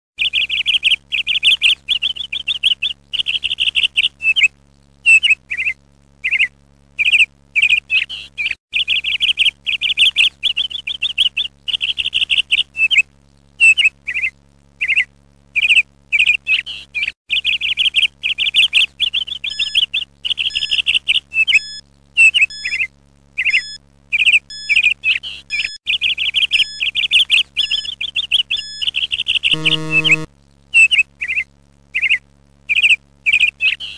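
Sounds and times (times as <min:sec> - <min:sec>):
songbird chirps and trills: 0:24.2 - 0:31.4.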